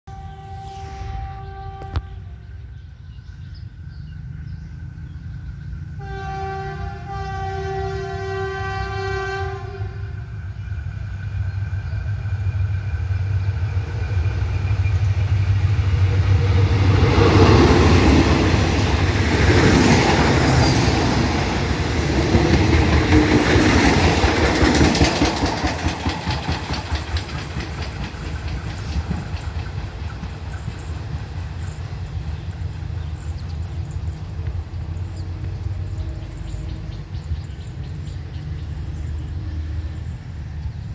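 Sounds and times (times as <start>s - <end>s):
locomotive horn blast: 0.1s - 2.6s, 6.0s - 10.4s
locomotive engine running: 10.0s - 40.9s
wheels clattering over rail joints: 16.6s - 39.3s
flat wheel knocking: 22.3s - 31.4s.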